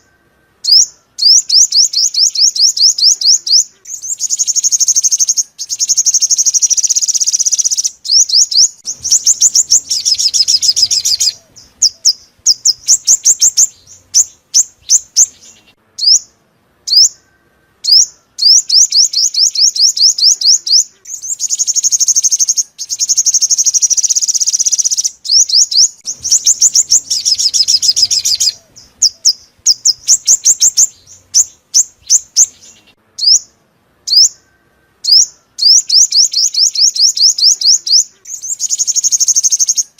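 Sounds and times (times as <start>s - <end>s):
bird trills and chirps: 0.0s - 39.9s.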